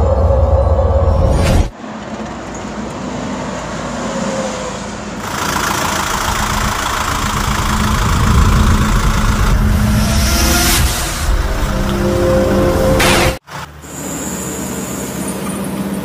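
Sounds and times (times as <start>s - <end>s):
road and wind noise: 0.0s - 16.0s
truck engine running: 5.0s - 16.0s.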